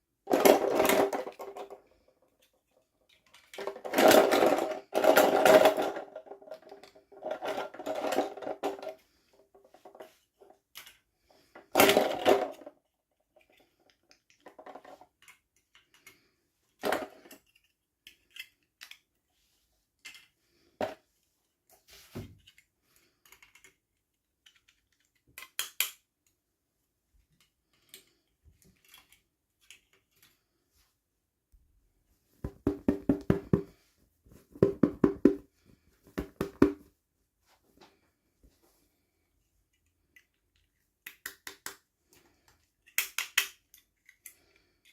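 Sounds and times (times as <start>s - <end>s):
small plastic pieces clicking: 13.4s - 19.2s, 22.5s - 26.4s, 39.7s - 41.8s, 42.4s - 44.9s.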